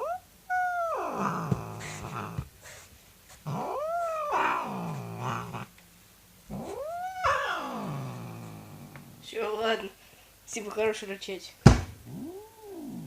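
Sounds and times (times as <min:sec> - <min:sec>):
cat yowling and growling: 0:00.0 - 0:02.8, 0:03.4 - 0:05.7, 0:06.5 - 0:09.2, 0:12.0 - 0:13.0.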